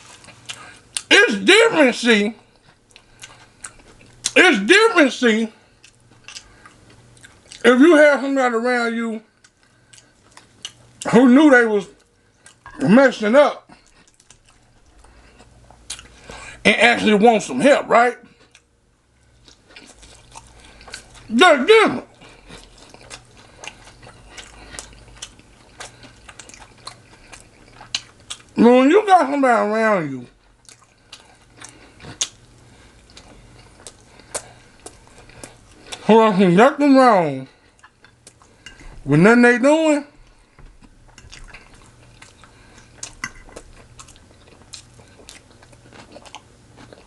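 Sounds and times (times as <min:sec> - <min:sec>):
person chewing crunchy food: 0:00.0 - 0:01.2, 0:02.4 - 0:04.4, 0:05.6 - 0:07.6, 0:09.3 - 0:11.2, 0:12.0 - 0:12.9, 0:13.6 - 0:16.6, 0:18.2 - 0:21.4, 0:22.0 - 0:28.6, 0:30.4 - 0:36.1, 0:37.6 - 0:38.9, 0:40.2 - 0:47.0.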